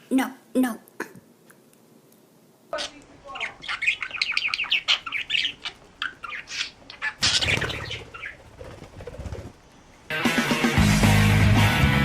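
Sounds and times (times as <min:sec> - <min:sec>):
bird chirping: 0:02.8 - 0:10.8
wings flapping: 0:02.8 - 0:11.8
music: 0:10.1 - 0:12.0.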